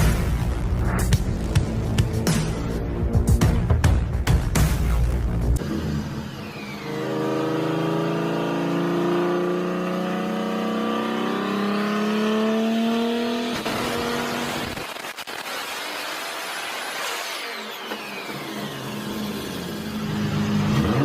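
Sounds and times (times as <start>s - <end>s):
car engine accelerating hard: 5.6s - 16.4s, 18.3s - 21.0s.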